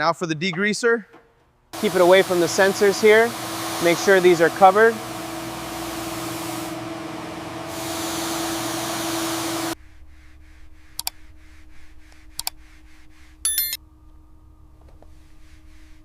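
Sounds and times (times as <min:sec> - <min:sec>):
spray hissing: 0:01.8 - 0:09.8
low hum: 0:09.7 - 0:16.0.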